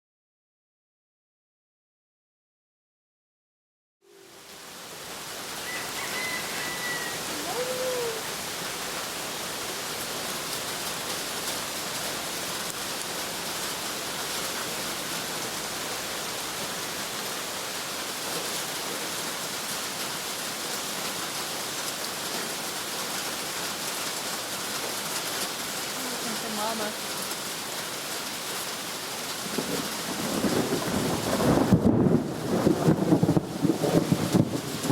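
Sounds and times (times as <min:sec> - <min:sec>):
steady rain falling: 0:04.1 - 0:34.9
faint short call: 0:07.3 - 0:08.3.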